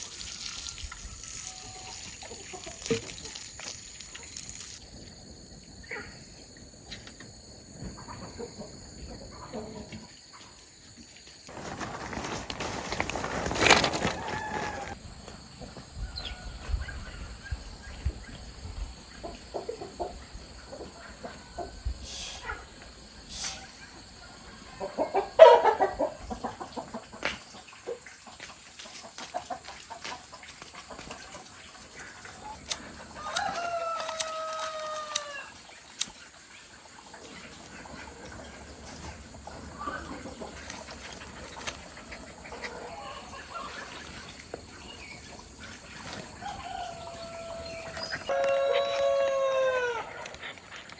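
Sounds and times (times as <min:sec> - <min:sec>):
chickens clucking: 0:01.5 - 0:04.8, 0:07.8 - 0:10.6, 0:19.0 - 0:50.9
rooster crowing: 0:14.0 - 0:15.0, 0:33.2 - 0:35.6, 0:46.3 - 0:50.3.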